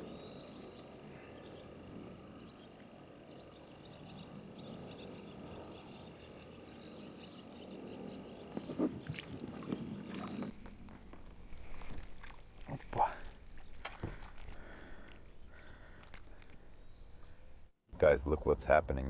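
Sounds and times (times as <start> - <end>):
small birds chirping: 0.0 - 10.5.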